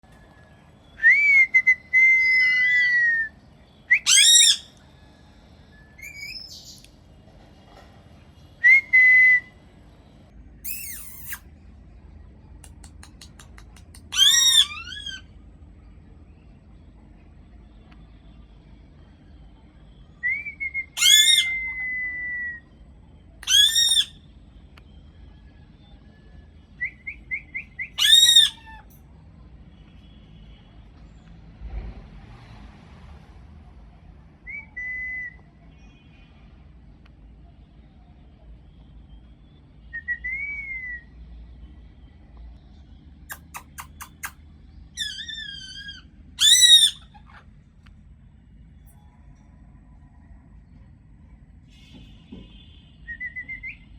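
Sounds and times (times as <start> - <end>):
parrot whistling: 3.9 - 4.7, 6.0 - 6.8, 10.6 - 11.4, 26.8 - 28.8, 45.0 - 47.2
parrot screeching: 4.0 - 4.7, 10.7 - 11.4, 14.1 - 15.3, 21.0 - 21.7, 23.4 - 24.2, 28.0 - 28.9, 45.0 - 47.5
parrot clicking: 12.6 - 14.1.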